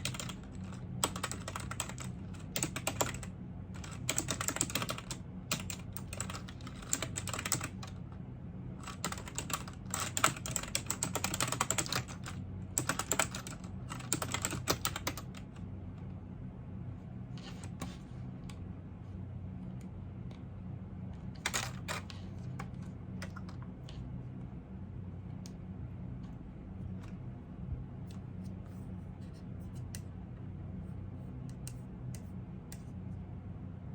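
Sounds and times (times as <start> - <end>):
keyboard typing: 0.0 - 8.0, 8.8 - 15.6, 21.4 - 23.7
low steady hum: 0.0 - 33.9.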